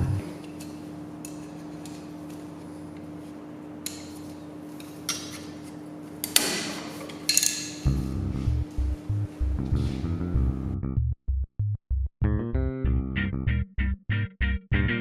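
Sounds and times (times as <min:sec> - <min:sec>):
steady low hum: 0:00.0 - 0:06.9, 0:07.5 - 0:11.1.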